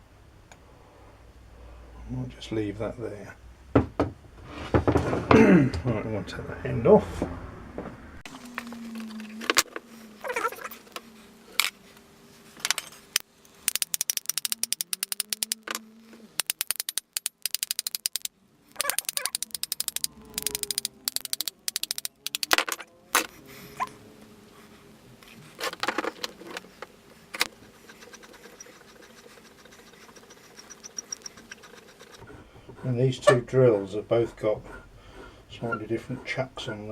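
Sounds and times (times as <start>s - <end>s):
rapid even mechanism clicking: 13.1s - 22.9s, 27.3s - 36.9s
metal parts knocking and clinking: 13.5s - 15.8s, 16.4s - 22.8s.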